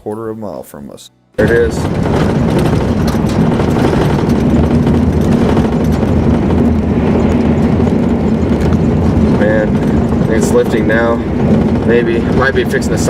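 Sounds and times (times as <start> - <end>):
car interior road noise: 1.4 - 13.0.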